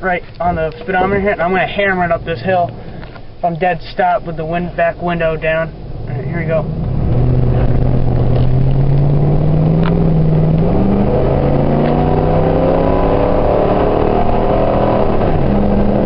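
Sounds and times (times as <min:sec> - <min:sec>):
truck engine accelerating hard: 0:06.0 - 0:16.0.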